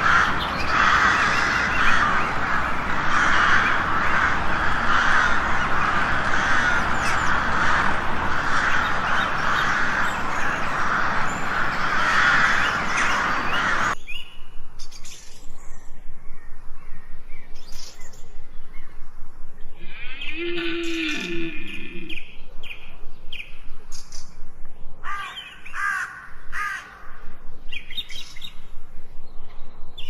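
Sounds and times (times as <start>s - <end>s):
chorus of birds calling: 0.0s - 14.0s, 25.1s - 28.6s.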